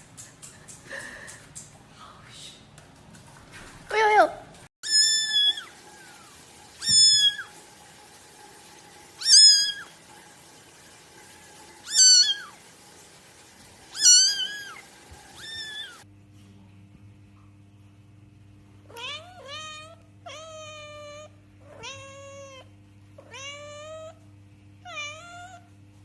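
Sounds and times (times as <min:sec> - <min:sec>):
cat meowing: 0:04.8 - 0:06.2, 0:06.8 - 0:07.5, 0:09.2 - 0:09.8, 0:11.9 - 0:12.5, 0:13.9 - 0:16.0, 0:18.9 - 0:24.2, 0:24.8 - 0:25.7.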